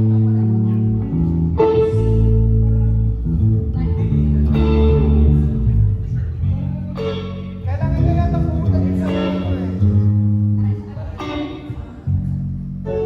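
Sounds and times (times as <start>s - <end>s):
bass guitar line: 0.0s - 13.0s
electric guitar chords: 0.0s - 13.0s.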